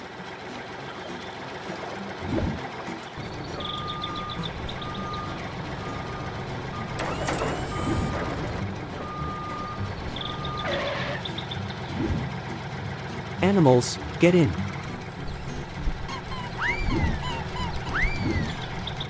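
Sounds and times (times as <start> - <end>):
low engine rumble: 0.1 - 19.0
reversing alarm beeping: 3.2 - 11.3.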